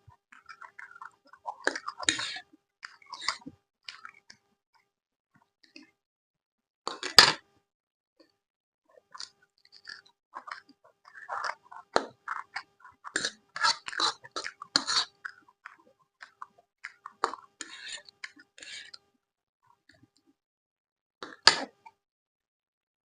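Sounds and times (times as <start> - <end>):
chewing and crunching: 0.0 - 4.4, 8.9 - 19.1
person eating crunchy food: 0.1 - 4.4, 9.1 - 19.0, 21.2 - 21.8.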